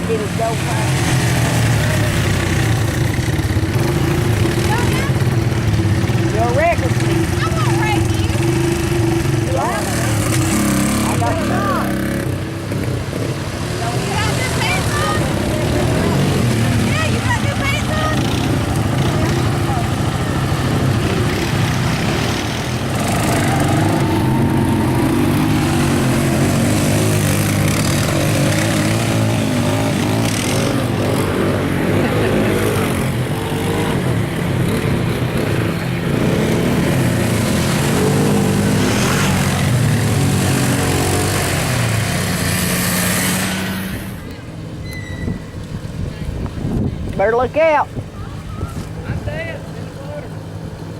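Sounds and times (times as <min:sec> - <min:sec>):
atv engine revving: 0:00.0 - 0:50.9.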